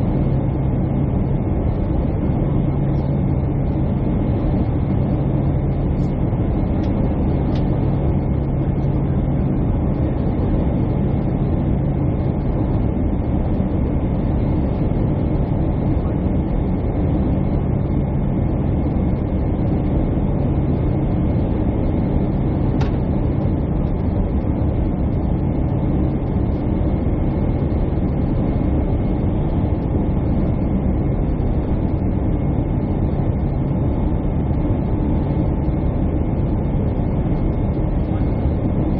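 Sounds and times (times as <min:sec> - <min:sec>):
jet engines and airflow hum: 0:00.0 - 0:38.9.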